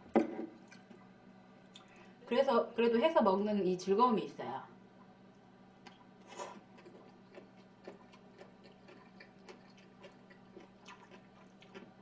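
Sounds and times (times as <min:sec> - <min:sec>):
person chewing food: 0:05.8 - 0:12.0.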